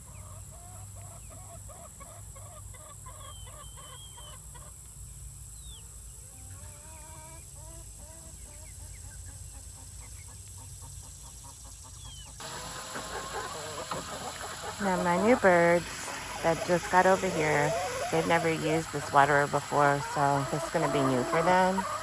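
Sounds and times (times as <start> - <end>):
chickens clucking: 0.0 - 4.9, 6.4 - 22.0
high falling peeps: 12.4 - 22.0.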